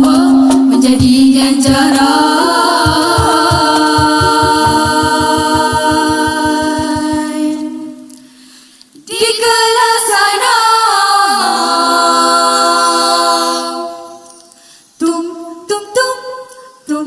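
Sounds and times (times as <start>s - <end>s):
vocal group singing a cappella: 0.0s - 8.1s, 9.0s - 14.4s.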